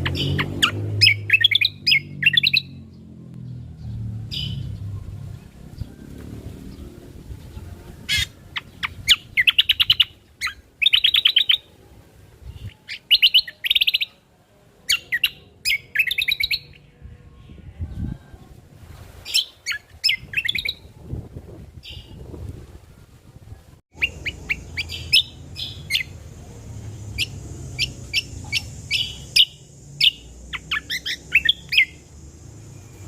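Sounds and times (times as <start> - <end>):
bird trilling and chirping: 0.0 - 6.0, 6.6 - 11.7, 12.4 - 14.2, 14.9 - 18.1, 19.2 - 20.9, 23.9 - 26.2, 26.9 - 32.1.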